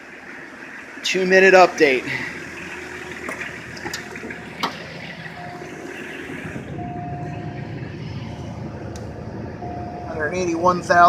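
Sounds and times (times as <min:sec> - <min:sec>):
diesel engine idling: 0:00.0 - 0:11.0
thin high tone: 0:05.3 - 0:08.8, 0:09.6 - 0:10.8.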